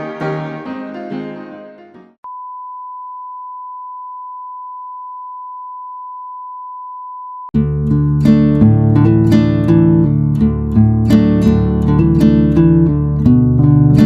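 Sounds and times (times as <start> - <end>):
guitar music: 0.0 - 2.2, 7.6 - 14.0.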